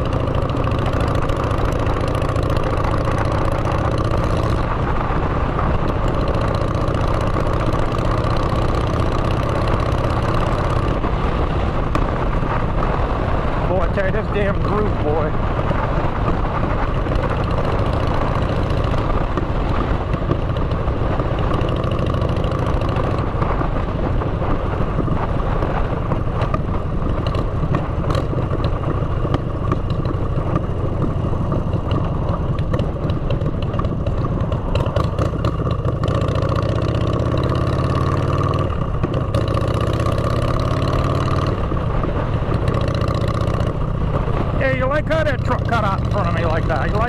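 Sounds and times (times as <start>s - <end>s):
motorcycle engine revving: 0.0s - 47.0s.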